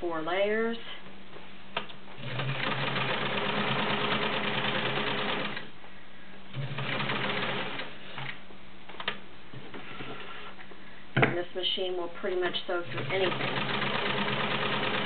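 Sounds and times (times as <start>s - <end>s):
sewing machine stitching: 2.2s - 5.6s, 6.5s - 8.3s, 12.8s - 15.0s.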